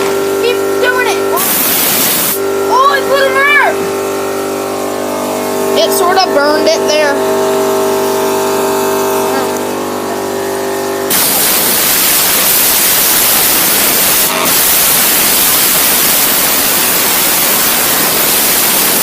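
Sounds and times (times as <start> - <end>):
steady humming tone: 0.0 - 18.2
compressed air hissing: 1.3 - 2.4, 11.1 - 19.0.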